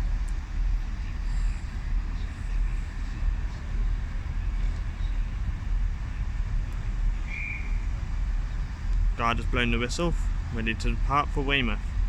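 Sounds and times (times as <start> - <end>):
steady low rumble: 0.0 - 12.0
whistle blast: 7.3 - 7.9.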